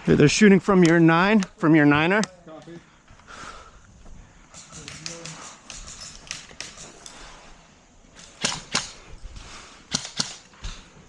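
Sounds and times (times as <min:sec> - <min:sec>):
airsoft gunshots: 0:04.5 - 0:06.9, 0:08.2 - 0:09.0, 0:09.9 - 0:10.9.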